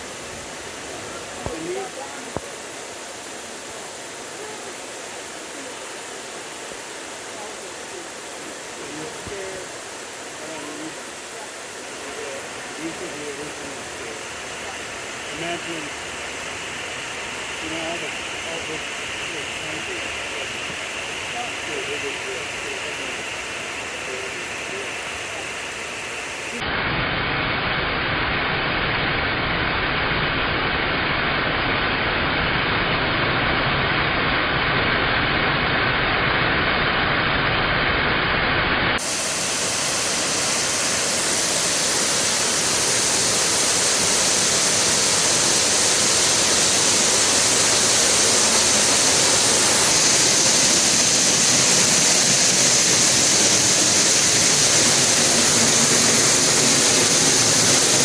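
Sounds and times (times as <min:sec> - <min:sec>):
waterfall rushing: 0:00.0 - 0:26.7, 0:29.2 - 0:58.0.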